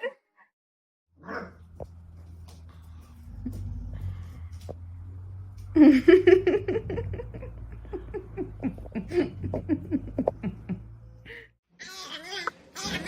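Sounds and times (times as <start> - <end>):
person laughing: 5.8 - 11.5.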